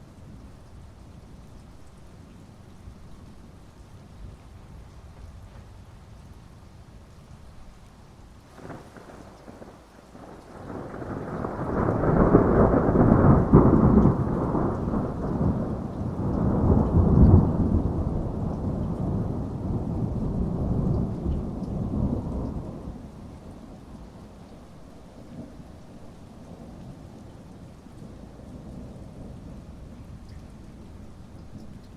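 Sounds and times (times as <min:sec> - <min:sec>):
faint steady rain: 0:00.0 - 0:31.9
thunder rolling: 0:08.5 - 0:23.0.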